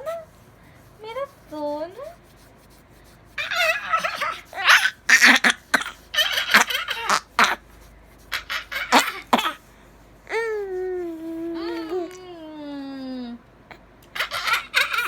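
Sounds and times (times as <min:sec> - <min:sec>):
baby shrieking: 0:03.4 - 0:07.6.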